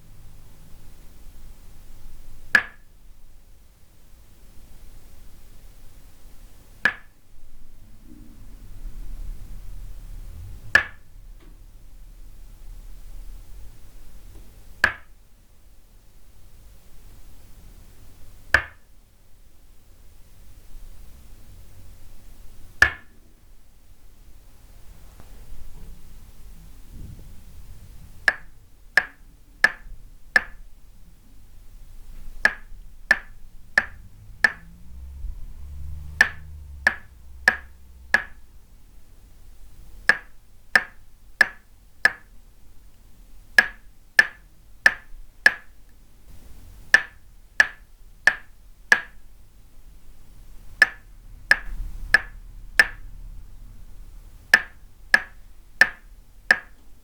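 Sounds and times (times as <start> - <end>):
wooden mallet tapping peg: 2.5 - 2.9, 6.8 - 7.2, 10.8 - 11.5, 14.8 - 15.1, 18.5 - 18.8, 22.8 - 23.1, 28.2 - 30.7, 32.4 - 34.8, 36.1 - 38.4, 40.0 - 42.3, 43.6 - 45.7, 46.9 - 49.2, 50.8 - 53.2, 54.5 - 56.8.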